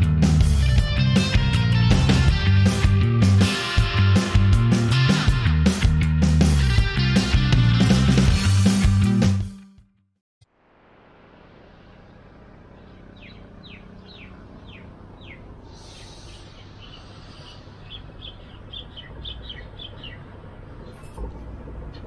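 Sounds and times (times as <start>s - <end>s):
low background hum: 10.6s - 22.0s
small birds chirping: 12.0s - 21.1s.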